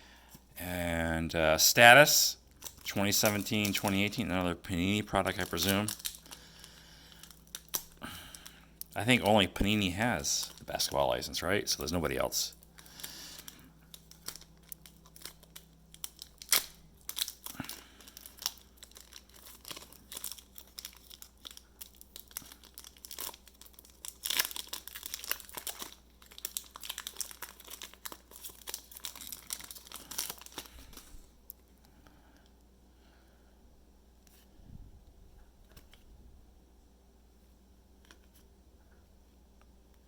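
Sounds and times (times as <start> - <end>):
foil wrapper crinkling: 2.4 - 31.3.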